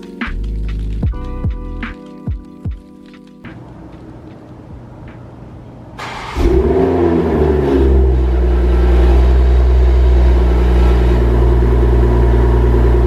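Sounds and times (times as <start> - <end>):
car engine starting and revving: 6.0 - 13.0
car engine idling: 7.8 - 13.0.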